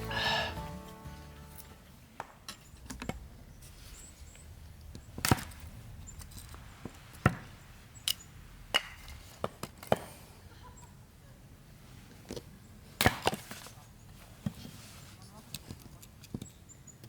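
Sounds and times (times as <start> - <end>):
firewood being chopped: 13.0 - 13.7.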